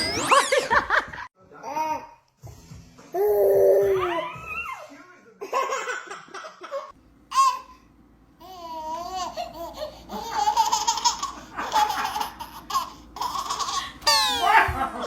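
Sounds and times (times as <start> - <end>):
baby laughing: 8.4 - 15.0
baby squealing: 12.0 - 14.7.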